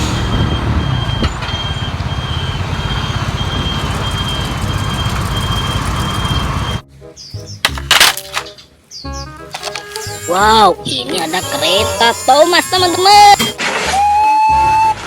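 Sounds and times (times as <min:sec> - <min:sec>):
reversing beeper: 0:00.0 - 0:06.8
truck engine rumbling: 0:00.0 - 0:06.9.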